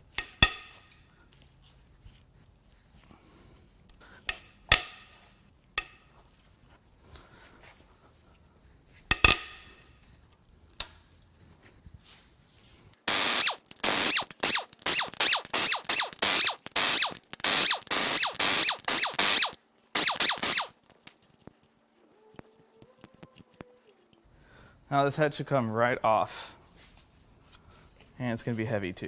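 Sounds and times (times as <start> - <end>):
power tool running in bursts: 13.1 - 20.7
sharp crack of bolt breaking loose: 13.1 - 21.2.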